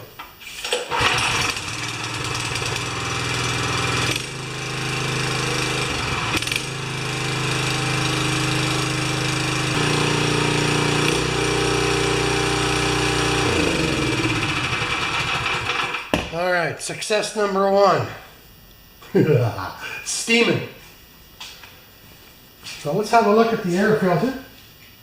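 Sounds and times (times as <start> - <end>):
small engine running: 0.9 - 16.0.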